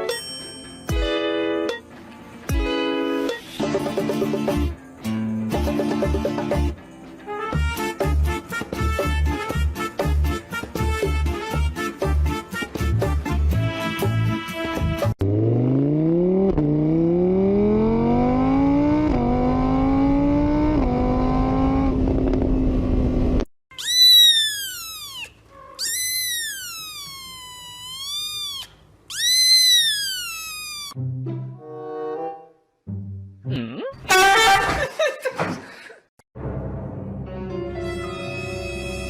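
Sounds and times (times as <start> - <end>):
car engine accelerating: 15.2 - 23.4
high-pitched wavering calls: 23.7 - 31.0.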